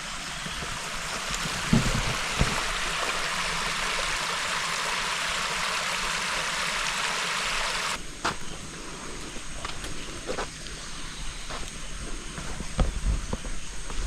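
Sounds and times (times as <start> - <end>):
flowing water: 0.0 - 8.0.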